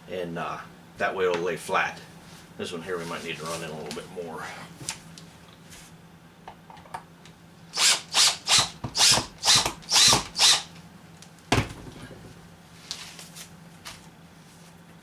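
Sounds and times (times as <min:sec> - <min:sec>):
drill driving screw: 0:07.7 - 0:10.7.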